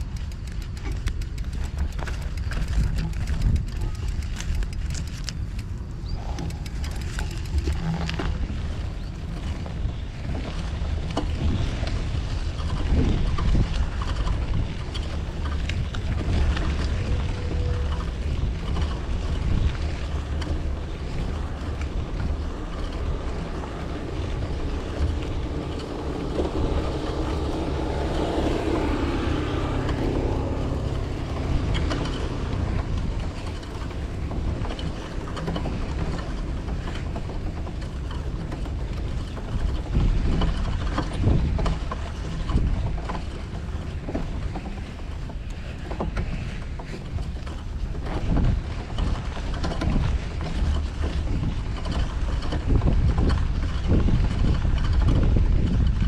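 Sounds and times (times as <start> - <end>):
wind rumble on microphone: 0.0 - 56.0
vehicle passing close: 19.7 - 37.7
city street traffic: 20.3 - 35.4.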